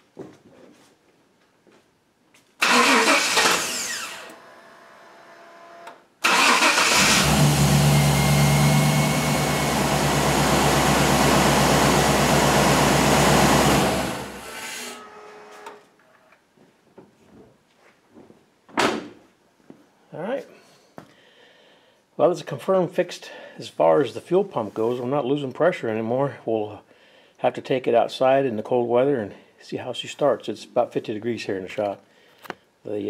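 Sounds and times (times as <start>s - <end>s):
car engine cranking and running: 2.6s - 5.1s, 5.8s - 15.0s.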